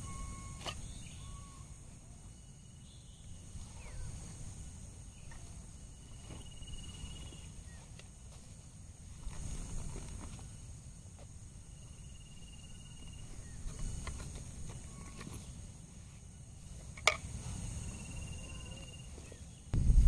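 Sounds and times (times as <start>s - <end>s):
insect pulsed trills: 0.0s - 20.0s
insects buzzing: 0.0s - 20.0s.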